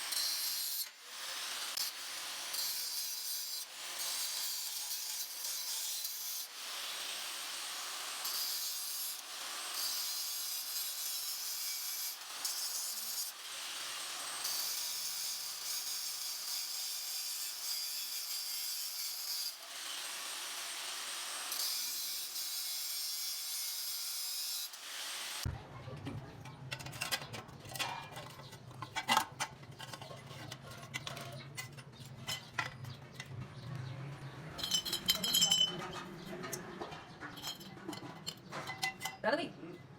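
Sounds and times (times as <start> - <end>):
hand tool scraping metal: 26.7 - 33.5, 34.6 - 39.2
metallic clinks: 34.5 - 36.7.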